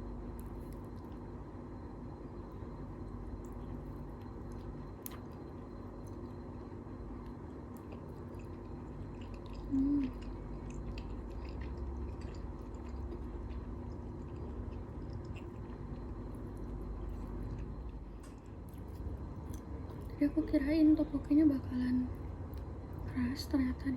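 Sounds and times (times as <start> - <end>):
low steady hum: 0.0 - 23.9
chewing and mouth sounds: 3.3 - 20.2.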